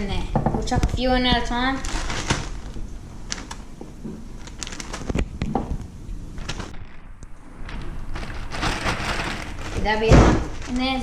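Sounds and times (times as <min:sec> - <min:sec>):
packet rustling: 0:01.0 - 0:11.0
food pieces tapping into packet: 0:04.4 - 0:05.8.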